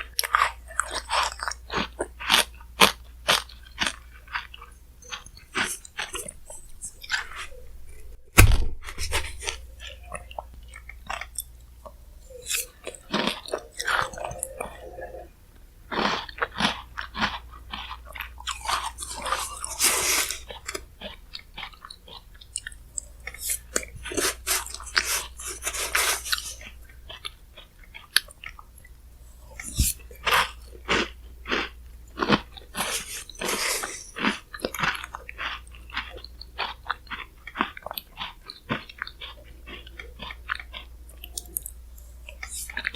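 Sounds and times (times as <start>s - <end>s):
close chewing and crunching: 0.0s - 8.2s, 8.8s - 42.9s
loud thump: 8.3s - 9.4s.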